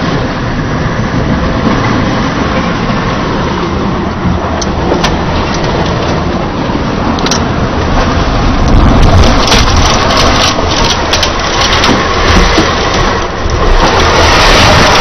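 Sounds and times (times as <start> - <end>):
heavy rain: 0.0 - 15.0
loud rushing wind: 0.0 - 15.0
cracking and crunching: 8.5 - 15.0.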